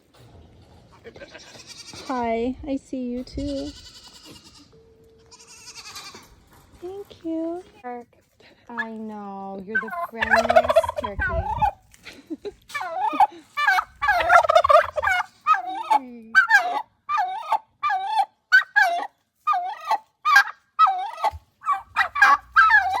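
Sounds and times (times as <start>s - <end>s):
poultry calling: 0.9s - 2.1s, 3.4s - 6.4s, 9.8s - 11.8s, 12.7s - 23.0s.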